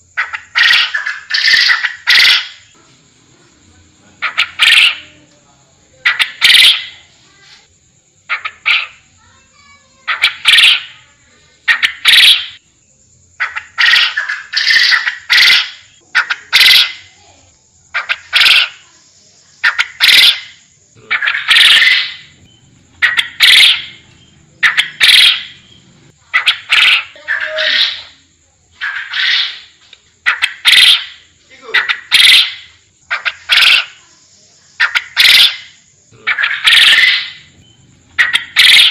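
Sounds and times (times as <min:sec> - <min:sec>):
quail calling: 0:00.0 - 0:02.8, 0:04.2 - 0:05.2, 0:06.0 - 0:07.1, 0:08.3 - 0:09.0, 0:10.0 - 0:11.0, 0:11.6 - 0:12.6, 0:13.4 - 0:17.1, 0:17.9 - 0:18.9, 0:19.6 - 0:28.2, 0:28.8 - 0:34.1, 0:34.8 - 0:38.9.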